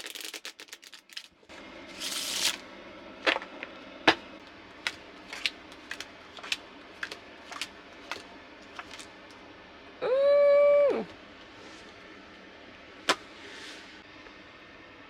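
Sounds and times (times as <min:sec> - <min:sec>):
playing cards rustling: 0:00.0 - 0:01.3, 0:02.0 - 0:02.6, 0:04.8 - 0:09.1.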